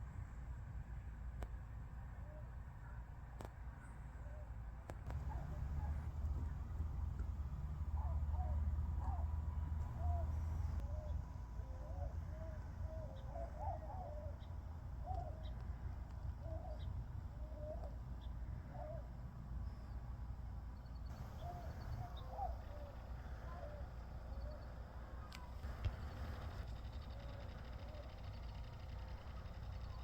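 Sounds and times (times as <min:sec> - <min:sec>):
bird calling: 0:05.1 - 0:18.0, 0:21.1 - 0:30.0.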